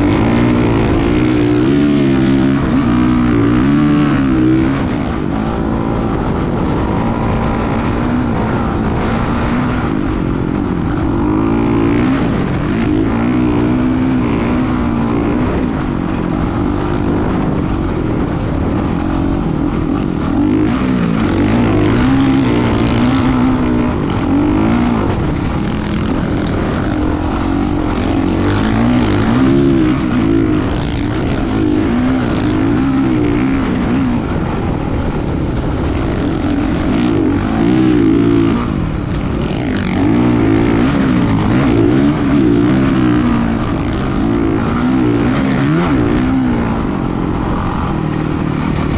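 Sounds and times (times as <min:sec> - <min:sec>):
constant rushing noise: 0:00.0 - 0:48.9
motocross bike engine revving: 0:00.0 - 0:48.9.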